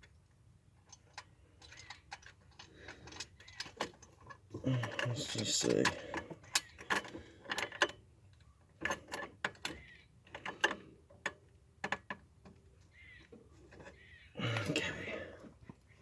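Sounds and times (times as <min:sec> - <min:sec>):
metal tools and parts clicking: 0:00.8 - 0:08.0.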